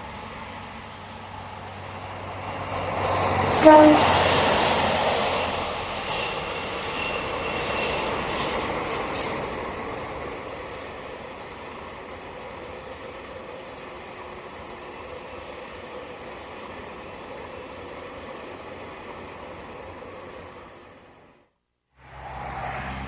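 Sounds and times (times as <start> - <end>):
thin wheel squeal: 6.1 - 8.6.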